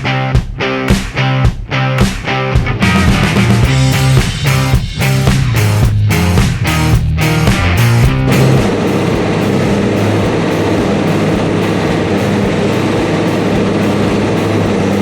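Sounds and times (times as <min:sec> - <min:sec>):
tractor and baler machinery: 0:08.2 - 0:15.0.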